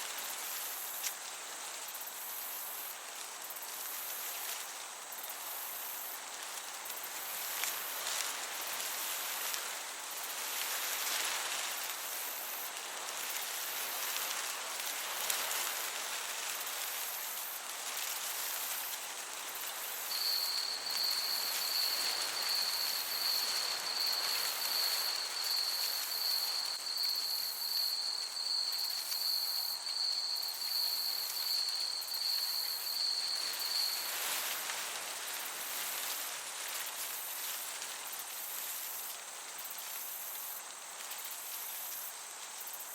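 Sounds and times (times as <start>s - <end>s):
cricket chirping: 0.0s - 42.9s
gentle breeze hiss: 0.0s - 42.9s.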